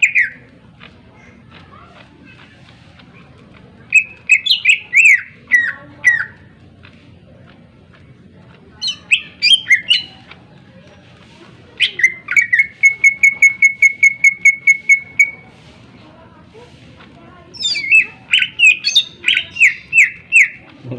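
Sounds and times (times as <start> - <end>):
bird singing whistled phrases: 3.9 - 6.4, 8.8 - 10.1, 11.8 - 15.4, 17.5 - 20.6.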